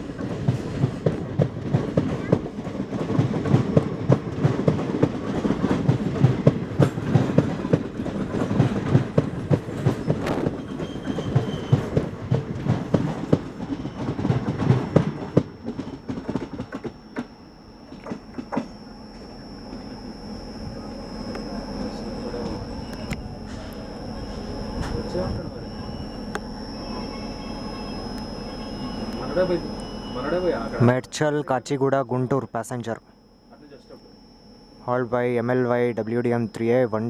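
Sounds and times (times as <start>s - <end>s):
train clickety-clack over rail joints: 0.0s - 19.2s.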